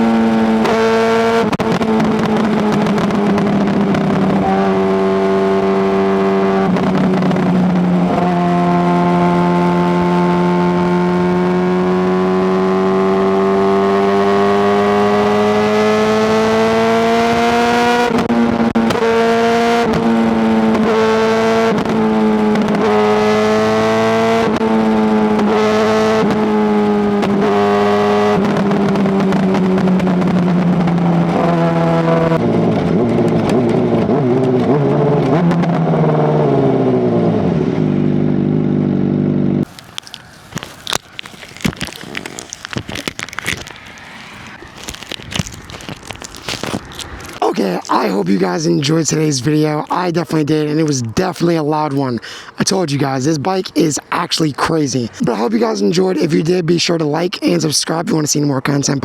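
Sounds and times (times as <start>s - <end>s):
motorcycle engine running: 0.0s - 17.5s, 26.3s - 36.1s.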